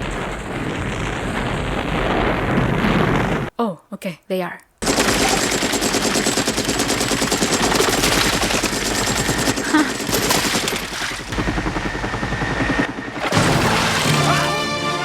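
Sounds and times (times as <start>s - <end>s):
automatic gunfire: 4.8s - 11.2s.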